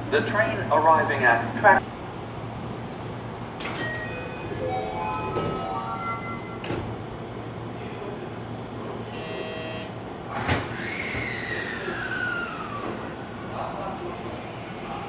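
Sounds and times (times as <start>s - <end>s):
train whine falling in pitch: 3.6s - 7.0s.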